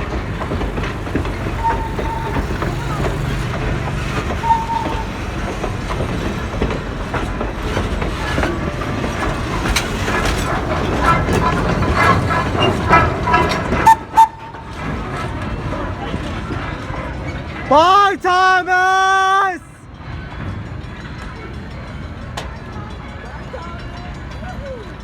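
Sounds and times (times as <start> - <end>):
wheels clicking over rail joints: 0.0 - 17.8
train rumbling past: 0.0 - 25.0.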